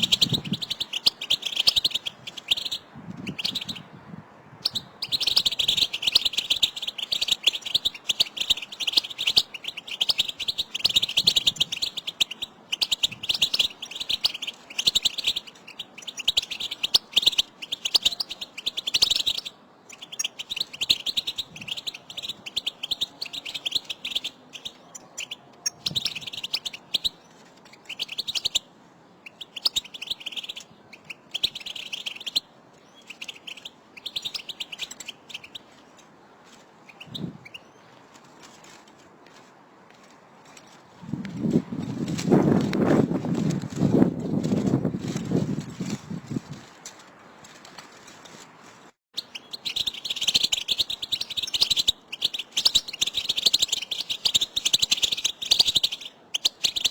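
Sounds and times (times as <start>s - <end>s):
finches twittering: 0.0s - 4.0s, 4.6s - 27.1s, 29.2s - 36.0s.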